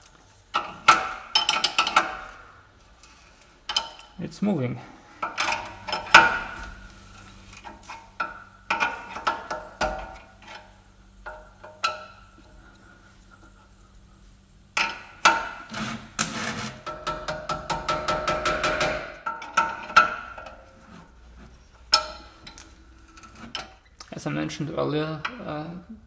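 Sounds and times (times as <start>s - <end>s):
steel tools knocking on metal: 0.5s - 2.4s, 3.7s - 4.2s, 5.2s - 6.8s, 7.6s - 12.6s, 14.8s - 20.7s, 21.9s - 22.6s.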